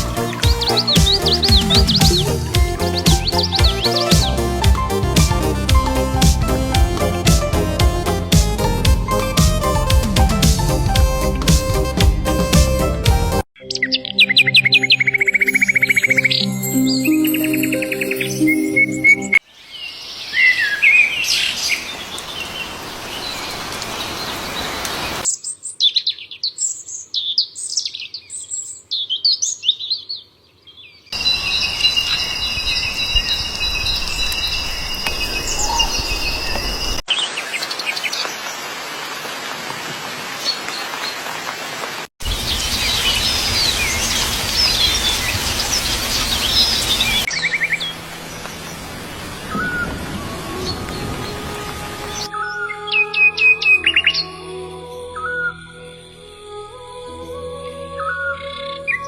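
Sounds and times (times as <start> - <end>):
birds chirping and calling: 0.0 - 4.5, 13.6 - 38.2, 42.3 - 54.3.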